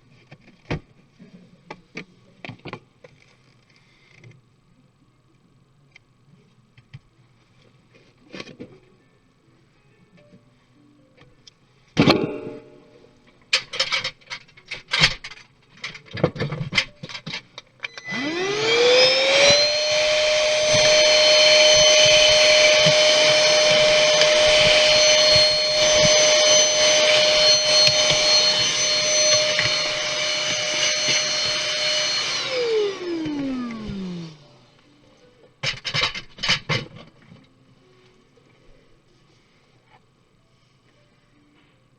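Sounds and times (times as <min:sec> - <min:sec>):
small electric motor whining: 0:17.9 - 0:34.7.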